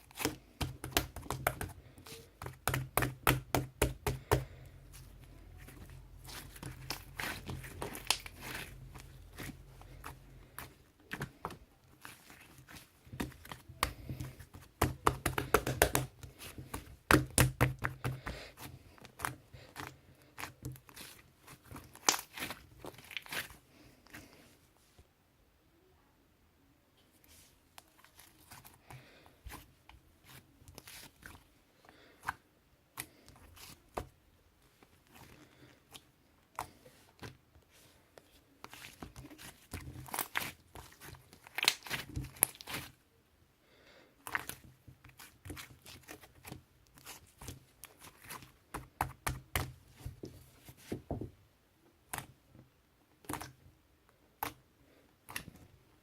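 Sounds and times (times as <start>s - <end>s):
slime crackling and popping: 6.3s - 10.0s, 19.2s - 23.6s, 38.7s - 42.9s.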